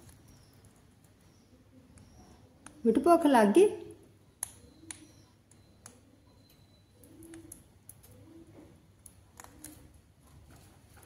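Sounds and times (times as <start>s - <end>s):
soft scattered clicks: 4.3s - 8.3s
bird cooing: 6.0s - 10.0s.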